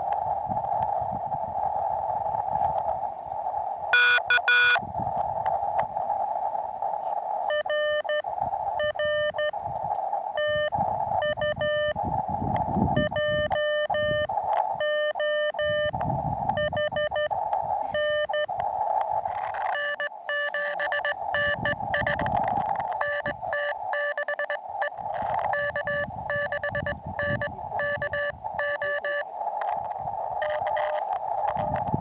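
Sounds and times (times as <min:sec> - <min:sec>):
morse code beeping: 0:03.9 - 0:04.8, 0:07.5 - 0:08.2, 0:08.8 - 0:09.5, 0:10.4 - 0:12.0, 0:13.0 - 0:16.0, 0:16.6 - 0:17.3, 0:17.9 - 0:18.5, 0:19.7 - 0:22.3, 0:23.0 - 0:29.2, 0:30.4 - 0:31.0
radio receiver hiss: 0:04.0 - 0:04.8, 0:06.8 - 0:11.9, 0:12.6 - 0:32.0.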